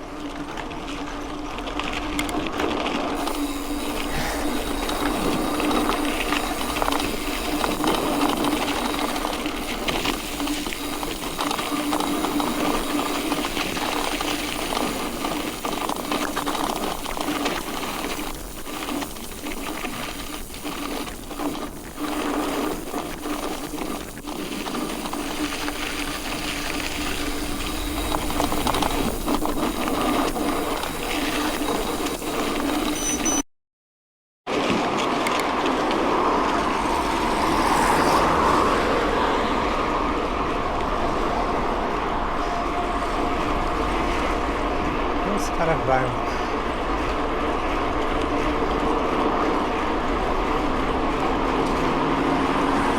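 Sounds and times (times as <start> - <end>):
bike tyres crunching over gravel: 0.0 - 33.4
bike frame rattling and clicking: 1.8 - 33.4.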